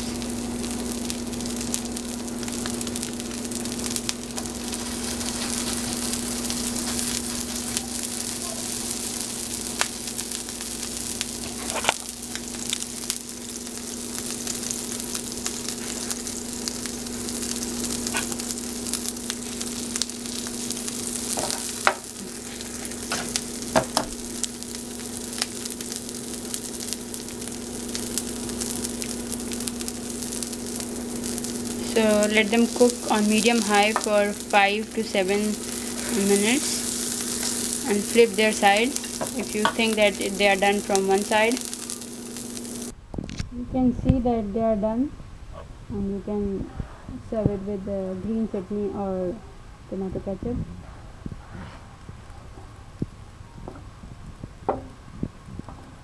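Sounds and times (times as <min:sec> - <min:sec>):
kebabs sizzling in oil: 0:00.0 - 0:43.0.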